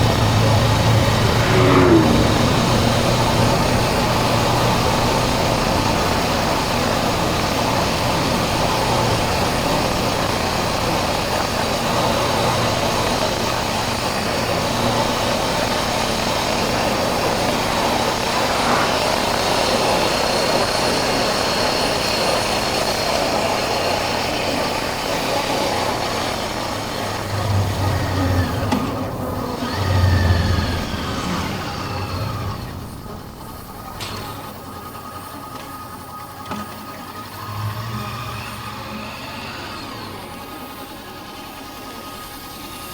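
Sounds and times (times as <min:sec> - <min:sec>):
wind and road noise: 0:00.0 - 0:23.2, 0:24.6 - 0:35.0.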